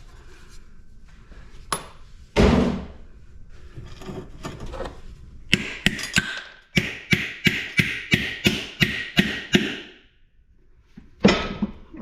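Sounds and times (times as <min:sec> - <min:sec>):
hammer striking metal: 0:05.5 - 0:10.0.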